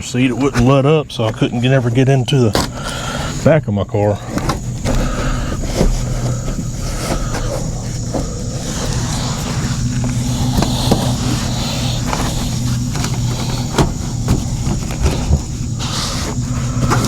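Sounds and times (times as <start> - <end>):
low hum: 0.0 - 17.0
knocks and clicks from handling parts: 12.1 - 15.8.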